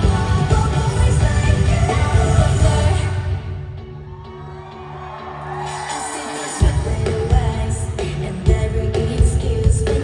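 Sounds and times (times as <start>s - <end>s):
live band music: 0.0s - 3.6s
crowd noise: 0.0s - 10.0s.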